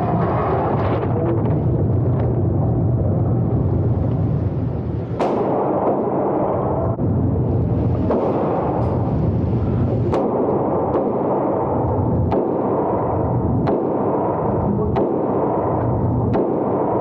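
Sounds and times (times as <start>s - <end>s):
loud low rumbling noise: 0.0s - 17.0s
gunshots: 5.1s - 6.8s, 8.0s - 9.3s, 10.0s - 17.0s.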